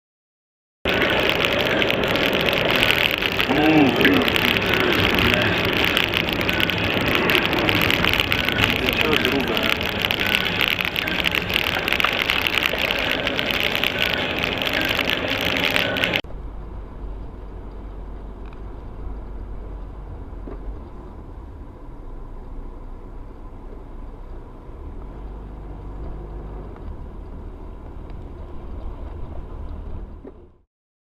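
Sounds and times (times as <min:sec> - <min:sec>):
loud noisy burst: 0:00.9 - 0:16.2
car rumbling on the move: 0:00.9 - 0:30.6.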